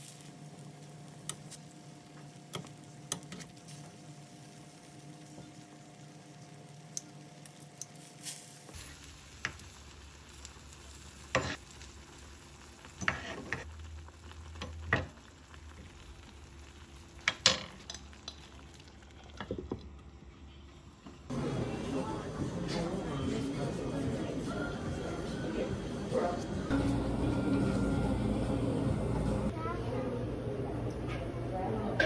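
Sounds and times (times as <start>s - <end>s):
food sizzling in a frying pan: 0.0s - 19.9s, 26.7s - 29.6s.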